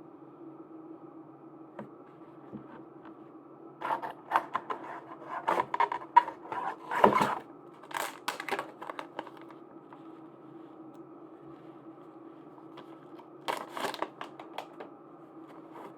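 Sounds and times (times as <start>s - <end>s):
steady low hum: 0.0s - 15.9s
packaging crinkling and clicking: 3.8s - 9.6s, 12.7s - 14.9s.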